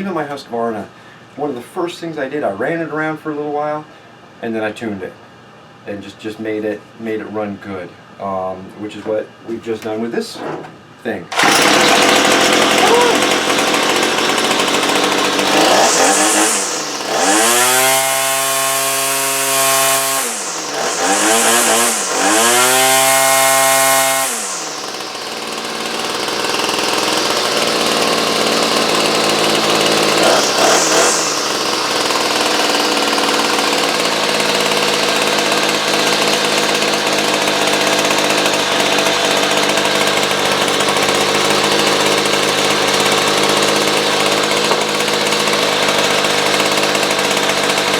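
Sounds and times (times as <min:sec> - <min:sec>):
small two-stroke engine revving: 0:11.3 - 0:47.9.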